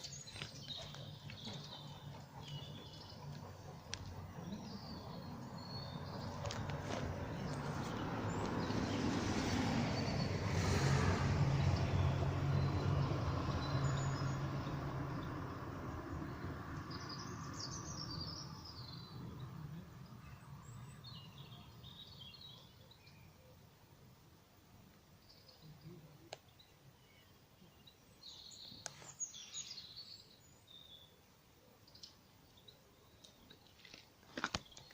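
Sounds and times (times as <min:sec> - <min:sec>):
passing vehicle engine hum: 0:00.0 - 0:22.5
birds chirping: 0:00.0 - 0:23.5.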